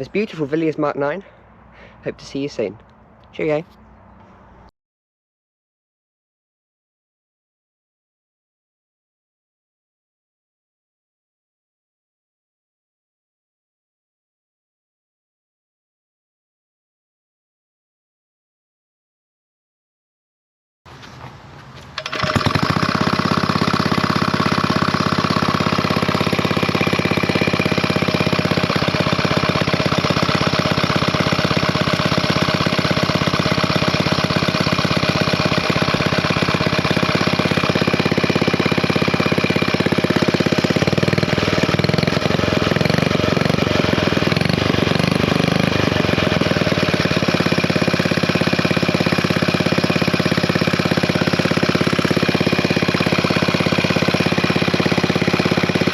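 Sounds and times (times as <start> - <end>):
stationary engine running: 22.0 - 55.9.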